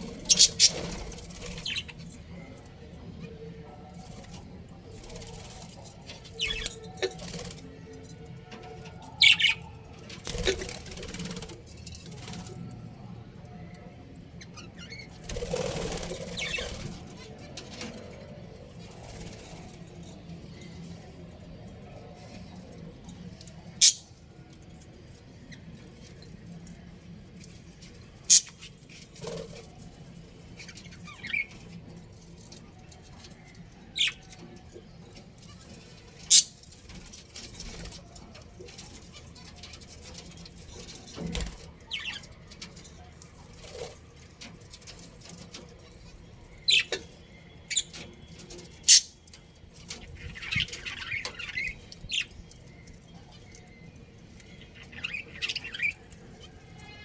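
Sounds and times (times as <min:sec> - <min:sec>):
budgerigar chattering: 0:00.3 - 0:00.8.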